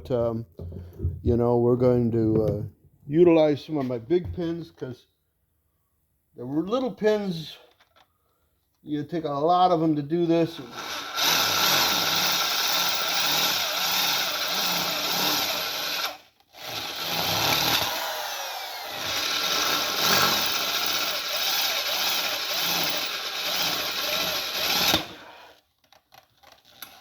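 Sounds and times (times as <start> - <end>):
power drill drilling into iron: 10.6 - 25.6.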